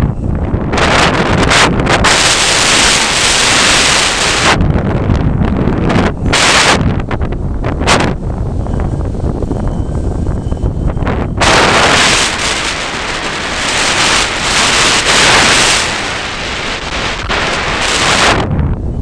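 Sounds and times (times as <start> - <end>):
wind buffeting microphone: 0.0 - 19.0
loud rushing hiss: 0.7 - 4.6, 6.3 - 6.9, 11.4 - 18.5.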